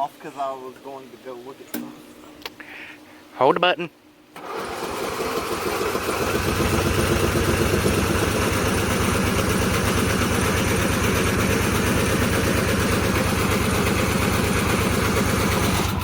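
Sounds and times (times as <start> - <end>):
engine cranking on electric starter: 4.3 - 16.0.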